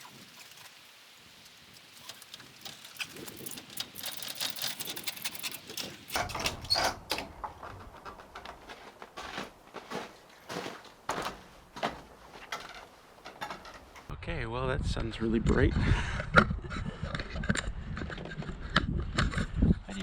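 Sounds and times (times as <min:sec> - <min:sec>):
ladder knocking and scraping: 0:02.0 - 0:14.1.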